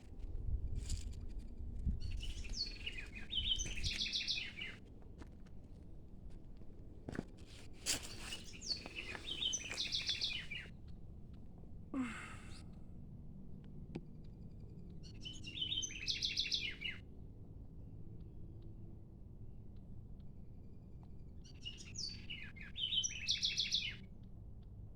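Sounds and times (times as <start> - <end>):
songbird singing trills: 2.0 - 4.8, 8.1 - 10.9, 15.0 - 17.0, 21.4 - 24.1.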